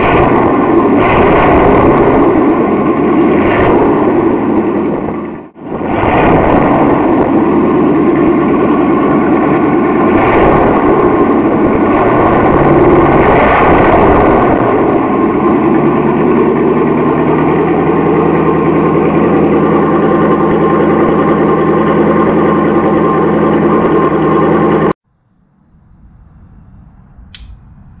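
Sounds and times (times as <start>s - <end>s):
engine idling: 6.8s - 28.0s.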